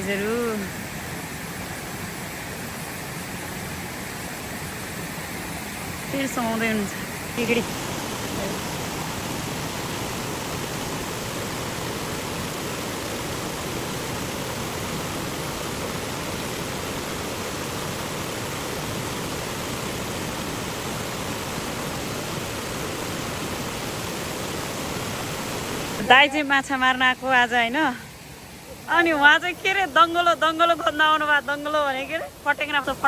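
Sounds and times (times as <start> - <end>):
stream rushing over rocks: 0.0 - 33.0.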